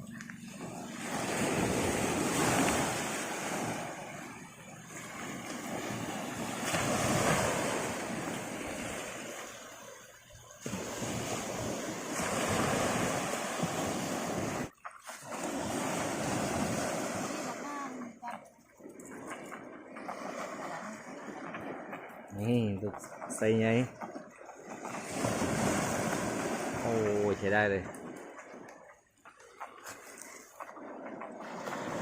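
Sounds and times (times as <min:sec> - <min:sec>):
sea waves breaking on shore: 0:00.0 - 0:32.0
wind on microphone: 0:10.6 - 0:14.7.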